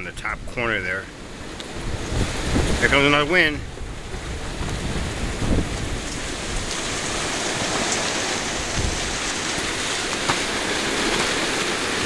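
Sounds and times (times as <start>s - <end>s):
heavy rain: 0.0s - 12.0s
wind buffeting microphone: 0.0s - 12.0s.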